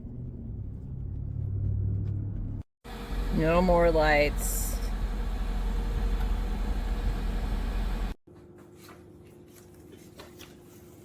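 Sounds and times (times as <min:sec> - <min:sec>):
car engine idling: 0:02.9 - 0:08.2.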